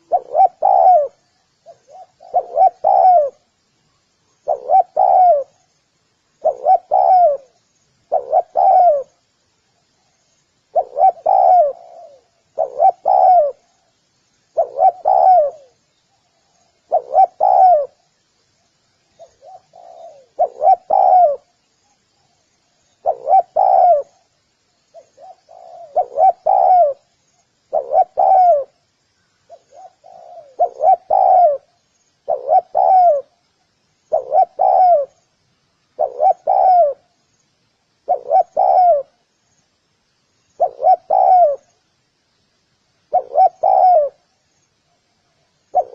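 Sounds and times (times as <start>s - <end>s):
dove cooing: 0.0s - 3.5s, 4.4s - 5.6s, 6.4s - 9.2s, 10.7s - 13.8s, 14.5s - 18.0s, 19.2s - 21.5s, 22.9s - 24.3s, 24.9s - 27.1s, 27.7s - 28.8s, 29.5s - 33.4s, 34.1s - 35.2s, 35.9s - 37.2s, 38.0s - 39.2s, 40.6s - 41.8s, 43.1s - 44.3s, 45.6s - 45.9s.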